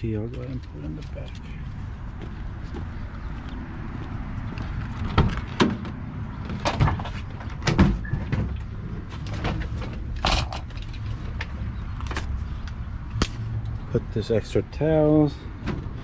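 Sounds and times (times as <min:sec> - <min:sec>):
knocks and clatters of gear: 0:04.5 - 0:12.3.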